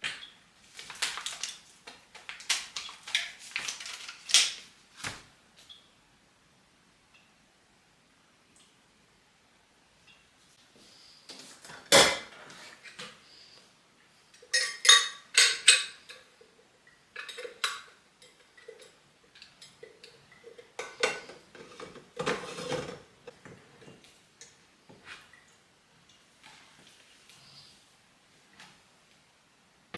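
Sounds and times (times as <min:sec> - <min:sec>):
cutlery clinking: 0:14.5 - 0:16.3
dish scraping: 0:20.8 - 0:24.0.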